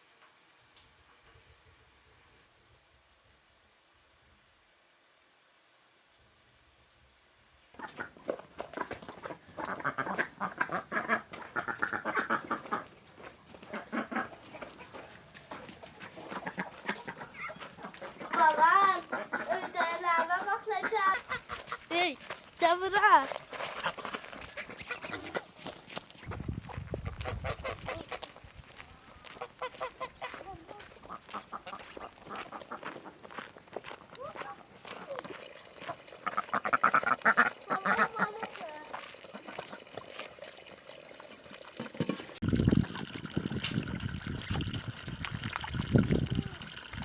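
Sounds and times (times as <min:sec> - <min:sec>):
ducks quacking: 0:07.7 - 0:22.0, 0:23.6 - 0:25.8, 0:26.7 - 0:28.4, 0:29.1 - 0:33.3, 0:35.9 - 0:39.7
chickens clucking: 0:07.8 - 0:22.1, 0:22.7 - 0:28.3, 0:29.1 - 0:33.3, 0:35.8 - 0:39.7.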